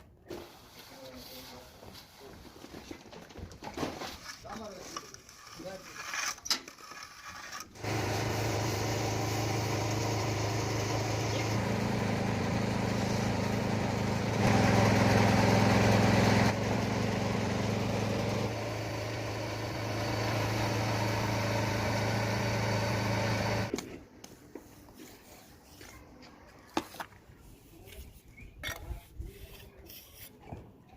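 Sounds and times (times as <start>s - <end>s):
machine motor humming: 7.8s - 23.7s.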